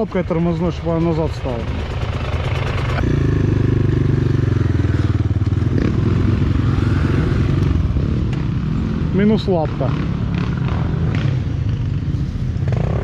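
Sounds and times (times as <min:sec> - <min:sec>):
motorcycle engine idling: 0:00.0 - 0:06.8.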